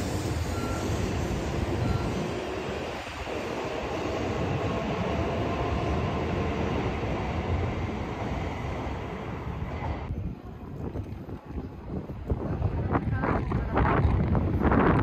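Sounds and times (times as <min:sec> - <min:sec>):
train rushing past: 0:00.0 - 0:10.1.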